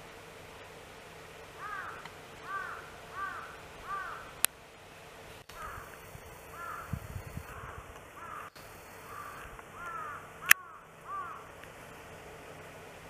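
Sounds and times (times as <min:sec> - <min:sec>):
bird calling: 0:01.6 - 0:04.5, 0:05.5 - 0:11.6.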